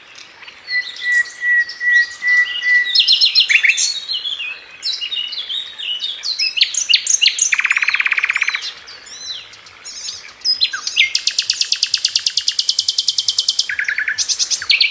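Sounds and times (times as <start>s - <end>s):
bird chirping and whistling: 0.7s - 5.3s, 6.4s - 9.4s, 10.0s - 14.9s
bird trills: 6.6s - 14.9s.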